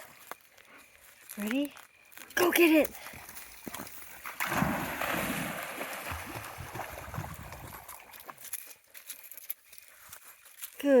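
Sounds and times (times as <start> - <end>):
dog splashing through water: 4.2 - 8.5.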